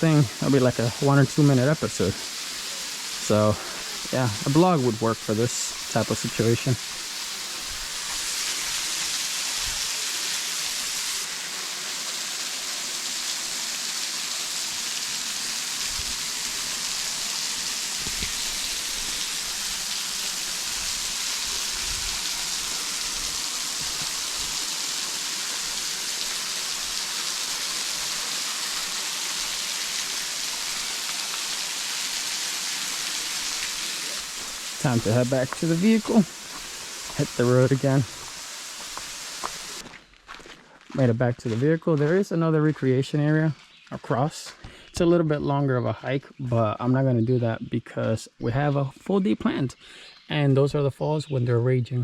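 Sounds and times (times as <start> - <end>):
small waterfall hissing: 0.0 - 40.0.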